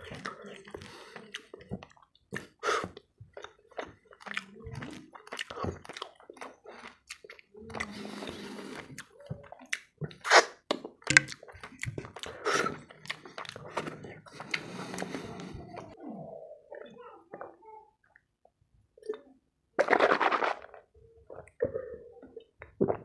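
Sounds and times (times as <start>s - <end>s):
wet chewing and lip smacks: 0.0s - 15.5s.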